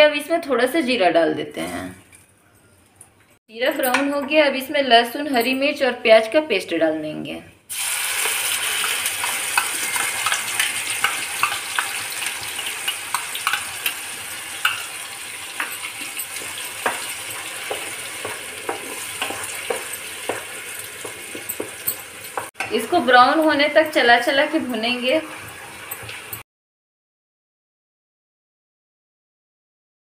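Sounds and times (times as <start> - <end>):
paste sizzling in hot oil: 7.7 - 22.9.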